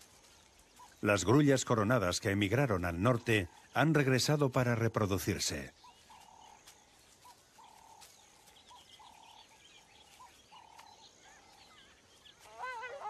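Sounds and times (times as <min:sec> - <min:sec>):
faint high bird chirps: 0:00.0 - 0:13.0
repeated bird call: 0:07.2 - 0:13.0.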